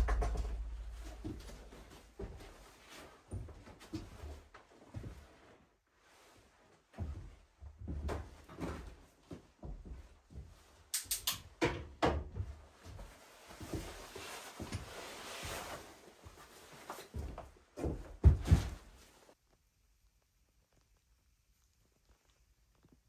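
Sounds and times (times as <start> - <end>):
knocks and thumps of objects: 0.0 - 1.6.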